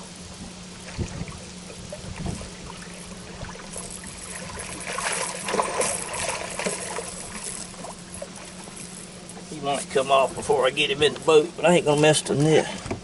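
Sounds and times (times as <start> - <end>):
steady low hum: 0.0 - 13.0
fish splashing at surface: 0.8 - 9.2.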